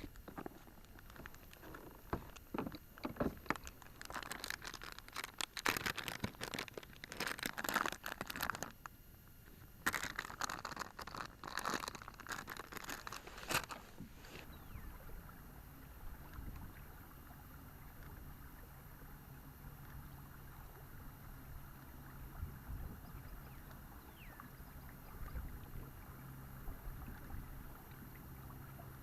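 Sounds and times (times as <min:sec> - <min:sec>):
crinkly packaging crackling: 0:00.0 - 0:08.9, 0:09.5 - 0:14.5.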